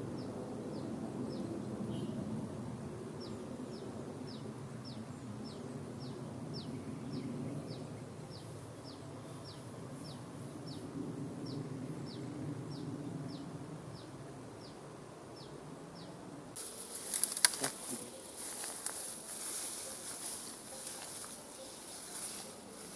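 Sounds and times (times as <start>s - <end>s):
rustling with sharp cracks: 16.6s - 22.9s
small bird chirping: 16.6s - 22.9s.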